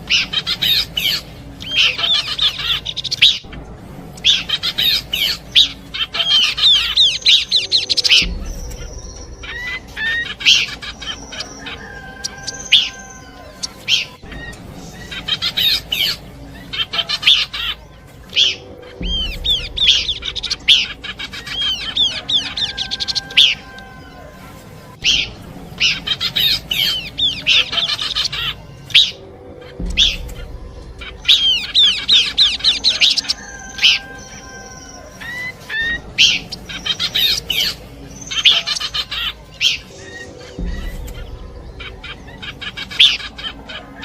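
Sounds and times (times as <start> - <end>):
bird chattering song: 0.0 - 44.0
bird whistled notes: 4.2 - 24.0.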